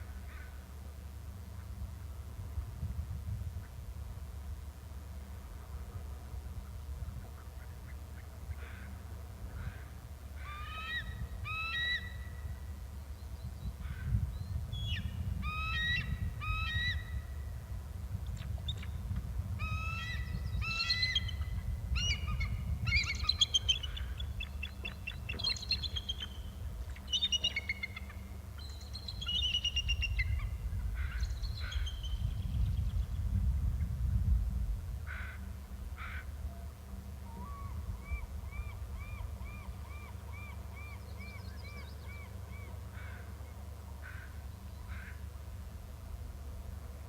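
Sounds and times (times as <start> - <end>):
bird trill: 19.6 - 30.5
birds calling with high ringing notes: 19.6 - 30.5.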